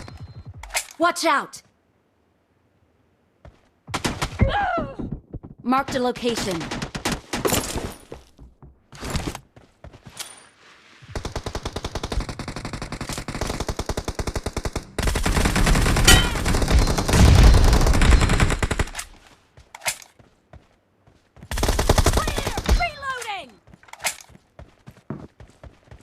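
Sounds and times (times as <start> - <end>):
video game automatic gunfire: 11.2 - 19.0, 21.5 - 22.8.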